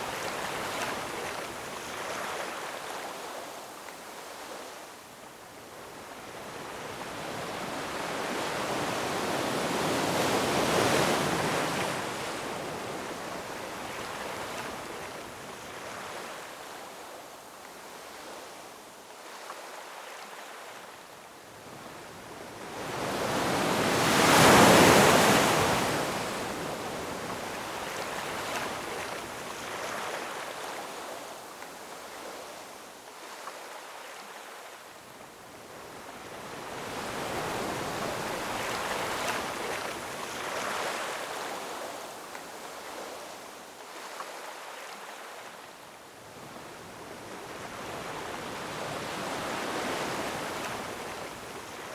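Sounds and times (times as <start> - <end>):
ocean waves breaking on rocks: 22.8 - 30.3.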